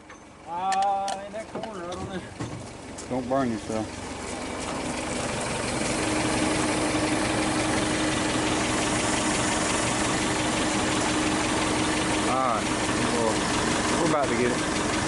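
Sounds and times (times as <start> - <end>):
engine running: 0.0 - 15.0
steady whine: 3.3 - 15.0.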